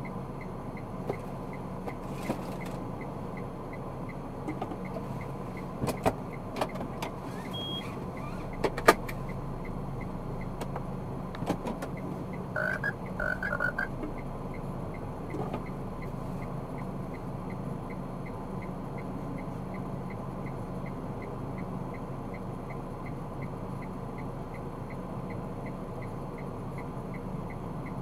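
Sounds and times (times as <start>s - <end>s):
car engine and road noise: 0.0s - 28.0s
short beeps: 7.6s - 7.9s, 12.5s - 13.9s
light even ticking: 9.2s - 28.0s.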